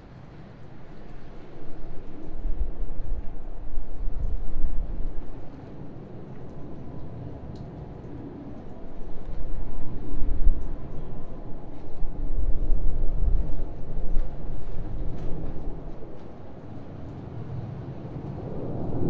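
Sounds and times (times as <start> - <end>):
air traffic rumble: 0.0 - 19.0.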